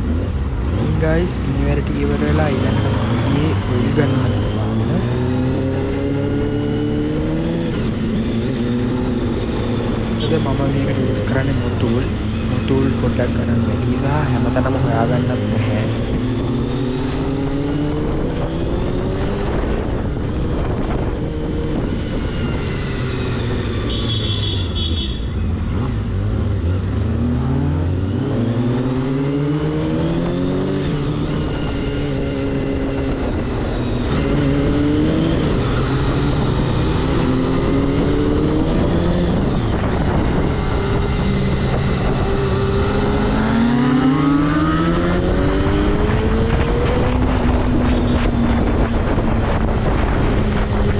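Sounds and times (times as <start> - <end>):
motorcycle engine shifting gears: 0.0 - 50.9
wind rush: 17.9 - 23.1, 33.0 - 43.9, 44.5 - 50.9.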